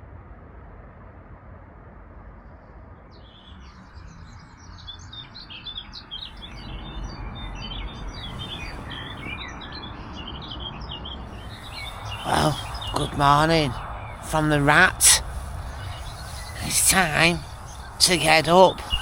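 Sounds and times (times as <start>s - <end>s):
low steady rumble: 0.0s - 4.6s
small birds chirping: 3.1s - 19.0s.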